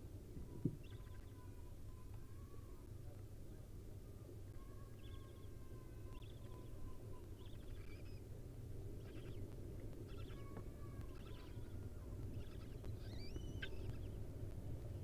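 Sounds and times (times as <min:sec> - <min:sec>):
steady low hum: 0:00.0 - 0:15.0
faint whistled bird calls: 0:00.8 - 0:02.5, 0:04.6 - 0:08.3, 0:09.0 - 0:14.2
faint clicks: 0:09.0 - 0:15.0
short bird chirps: 0:12.4 - 0:14.1.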